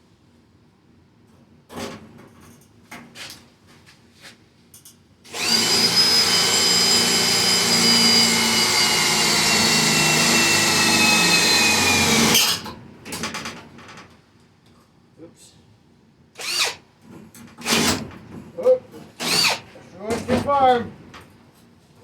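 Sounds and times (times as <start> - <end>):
power drill drilling steel: 5.3 - 12.6, 16.4 - 16.8, 17.6 - 18.0, 19.2 - 19.7.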